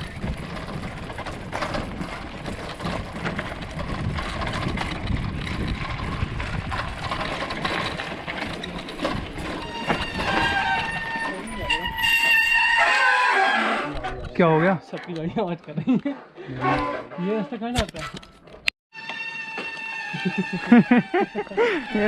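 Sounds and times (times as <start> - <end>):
bicycle rattling clatter: 0.0 - 12.8, 17.9 - 22.0.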